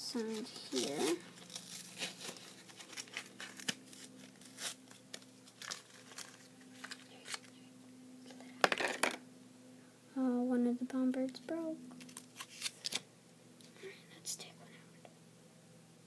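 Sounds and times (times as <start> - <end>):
plastic packaging crinkling and tearing: 0.1 - 7.6, 12.0 - 13.0.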